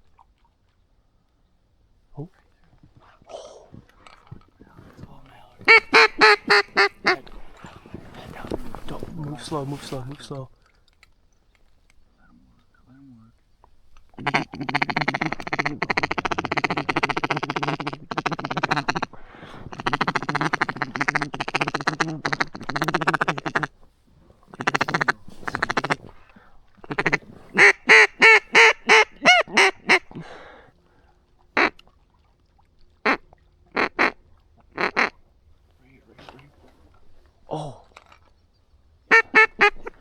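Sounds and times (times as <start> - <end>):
duck call quacking: 5.6 - 7.4, 14.2 - 23.7, 24.5 - 26.2, 26.8 - 30.2, 31.6 - 31.8, 33.8 - 34.2, 34.8 - 35.2, 39.1 - 40.0.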